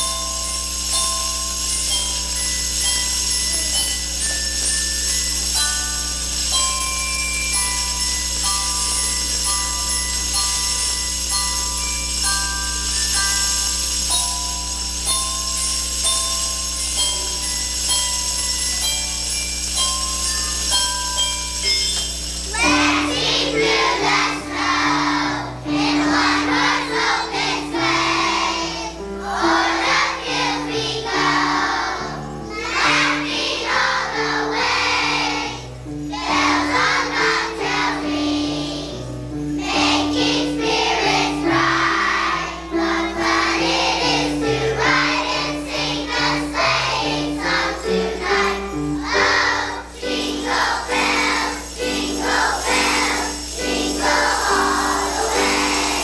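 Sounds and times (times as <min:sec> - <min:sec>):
children's choir singing a christmas song: 0:00.0 - 0:56.0
instrumental accompaniment: 0:00.0 - 0:56.0
children's choir singing: 0:22.4 - 0:56.0.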